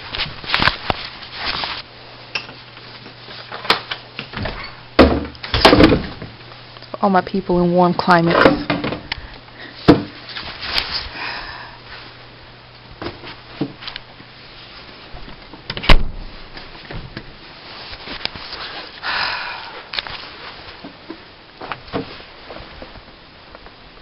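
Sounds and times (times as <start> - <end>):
rustling or scraping: 0.0 - 1.9, 10.2 - 11.2, 16.4 - 19.0, 20.0 - 23.1
door clunks and knocks: 4.4 - 6.3.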